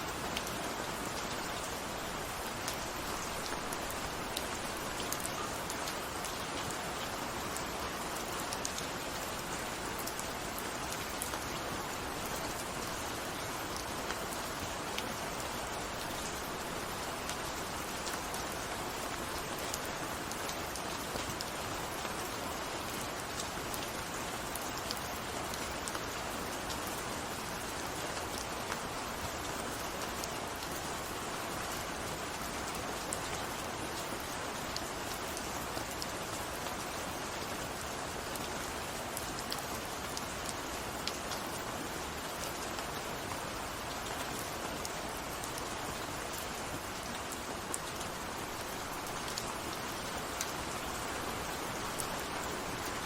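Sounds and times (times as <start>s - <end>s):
raindrops ticking on a surface: 0.0s - 53.0s
steady rain hissing: 0.0s - 53.0s.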